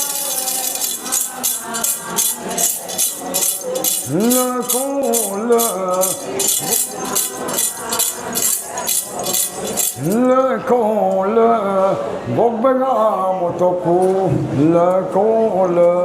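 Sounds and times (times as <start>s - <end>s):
metal jingles shaken rhythmically: 0.0s - 10.3s
person singing wavering line: 0.0s - 11.2s.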